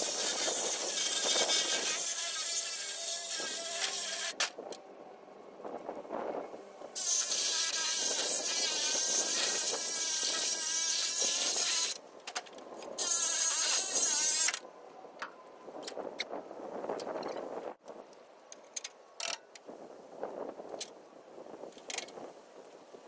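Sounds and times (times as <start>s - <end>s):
metal-cutting tool buzzing: 0.0s - 4.4s, 7.0s - 12.0s, 13.0s - 14.6s.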